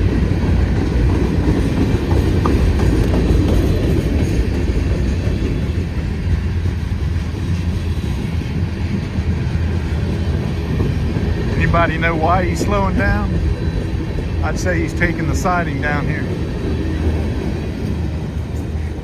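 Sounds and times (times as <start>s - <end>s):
freight train rolling on rails: 0.0s - 19.0s.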